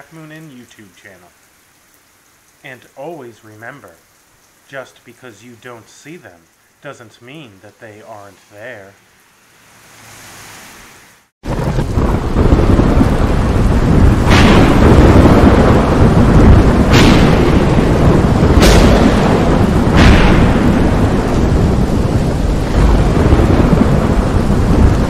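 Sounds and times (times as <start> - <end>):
heavy rain: 0.0 - 25.0
low rumble of thunder: 11.4 - 25.0
sharp thunder cracks: 11.4 - 25.0.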